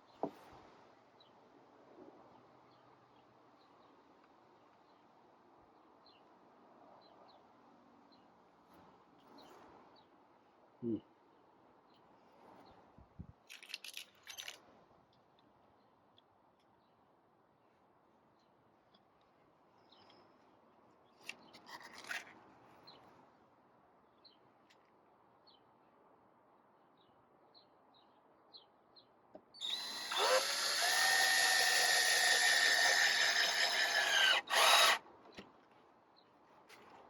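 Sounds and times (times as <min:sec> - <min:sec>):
power drill spinning: 0:29.6 - 0:35.0.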